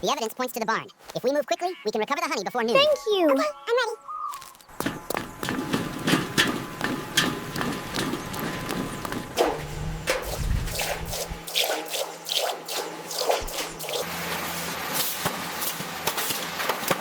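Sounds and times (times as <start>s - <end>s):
steady low hum: 4.7s - 11.5s
dripping squelching sounds: 4.7s - 14.1s.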